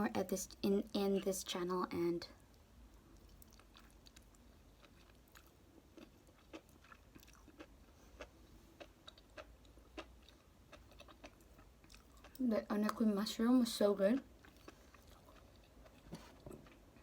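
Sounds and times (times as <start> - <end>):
person chewing noodles: 2.5 - 12.4, 14.2 - 17.0.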